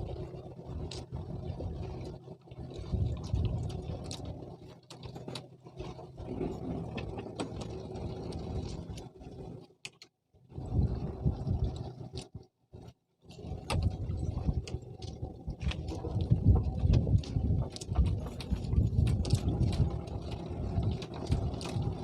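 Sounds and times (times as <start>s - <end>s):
low rumble: 10.5s - 12.3s, 13.4s - 22.0s.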